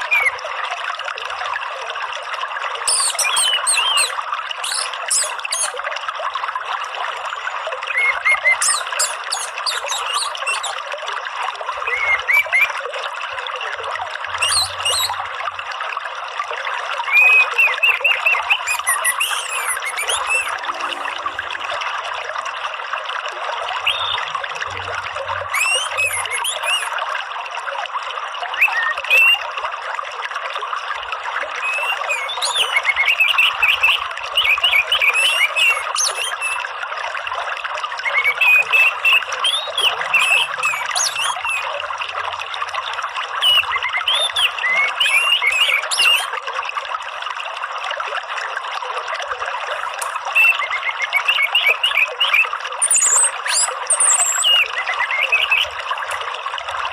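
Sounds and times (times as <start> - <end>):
running water: 0.0 - 56.9
rapid chirping animal calls: 2.9 - 5.8, 7.8 - 10.8, 14.4 - 15.2, 17.1 - 21.0, 25.5 - 27.0, 31.6 - 36.6, 38.2 - 41.7, 43.4 - 46.3.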